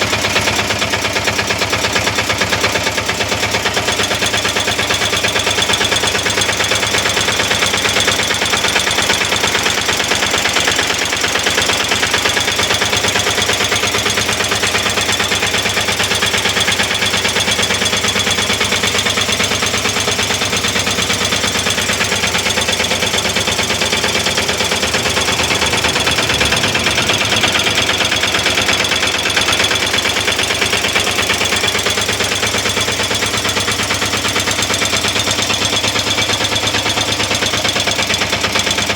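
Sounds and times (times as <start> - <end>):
diesel engine knocking: 0.0 - 38.9.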